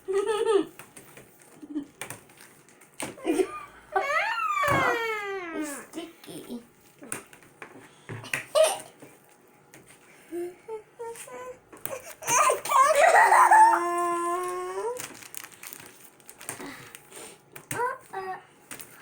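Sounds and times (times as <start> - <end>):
child whining cry: 3.2 - 5.9, 10.7 - 15.0.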